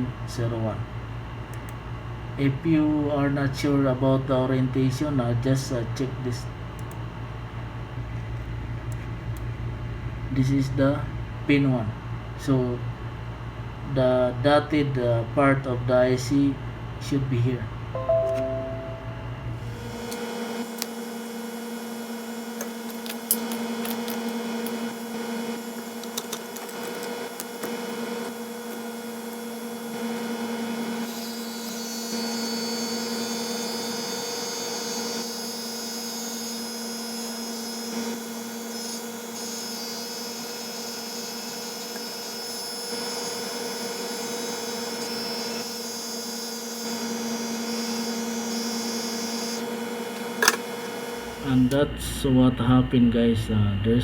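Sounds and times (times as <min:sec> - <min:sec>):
high whine: 0:18.0 - 0:19.9.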